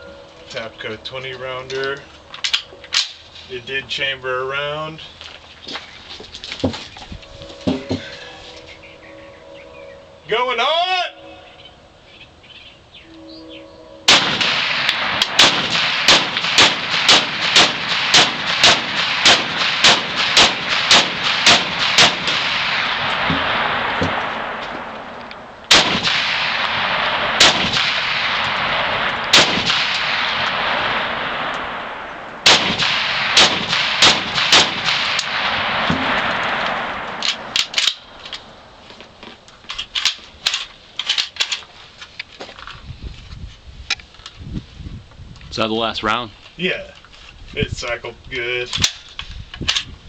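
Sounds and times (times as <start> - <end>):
rifle shots with long echo: 14.1 - 38.8.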